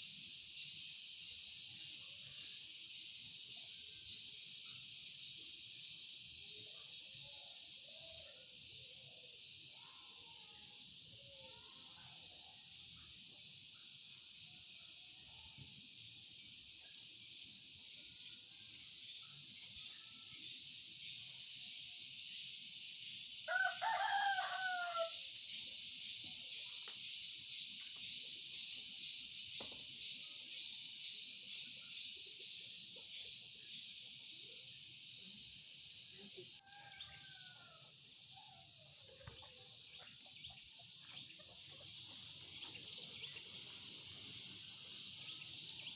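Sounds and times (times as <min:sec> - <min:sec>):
steady high hiss: 0:00.0 - 0:45.9
faint bird chirps: 0:16.4 - 0:21.4, 0:36.1 - 0:44.5
rooster crowing: 0:23.5 - 0:25.2, 0:36.6 - 0:38.0.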